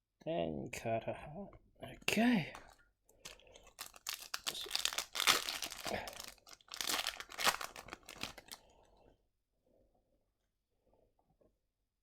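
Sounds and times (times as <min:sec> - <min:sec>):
foil wrapper crinkling and tearing: 0:03.6 - 0:08.6.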